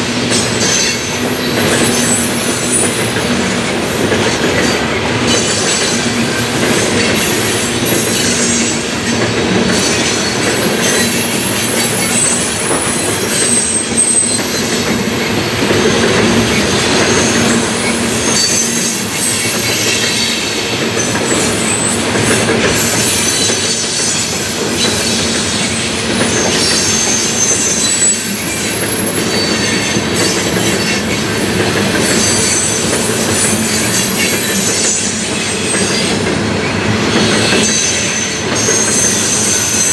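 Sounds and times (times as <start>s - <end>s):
train wheels rumbling on rail: 0.0s - 39.9s
high wheel squeals: 0.3s - 39.9s.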